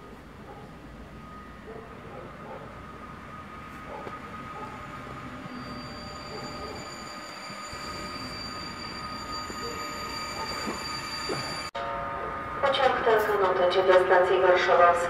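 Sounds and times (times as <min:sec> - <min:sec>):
low rail rumble: 0:00.0 - 0:15.0
wheels and brakes squealing: 0:00.5 - 0:11.7.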